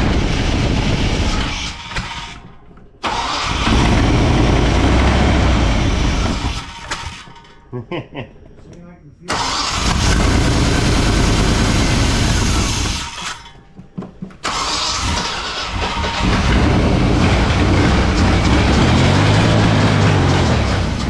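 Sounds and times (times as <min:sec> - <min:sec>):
engine starting and running: 0:00.0 - 0:07.7, 0:09.3 - 0:13.6, 0:14.4 - 0:21.0.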